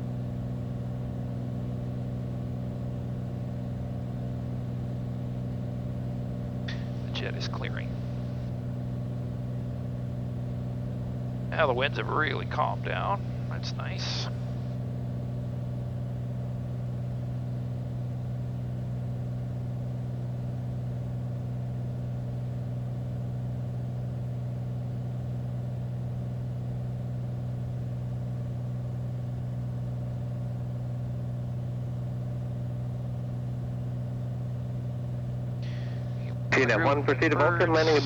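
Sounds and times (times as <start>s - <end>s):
propeller plane engine drone: 0.0s - 38.0s.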